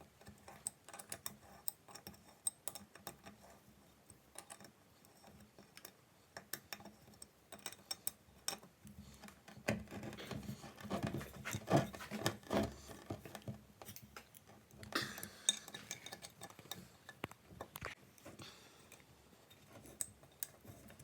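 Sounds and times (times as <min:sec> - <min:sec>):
metal clinks and knocks: 0:14.8 - 0:17.8.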